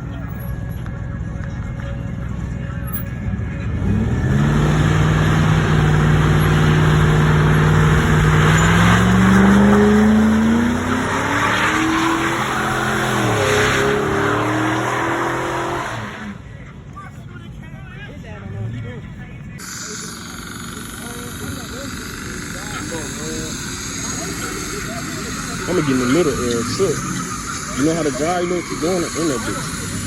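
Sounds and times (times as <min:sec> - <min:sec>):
car engine revving hard: 0:03.7 - 0:16.4, 0:19.6 - 0:30.0.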